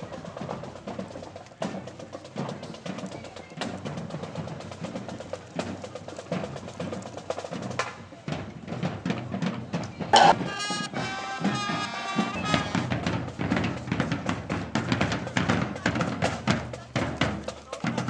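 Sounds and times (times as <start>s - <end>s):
snare drum strokes: 10.1s - 14.3s.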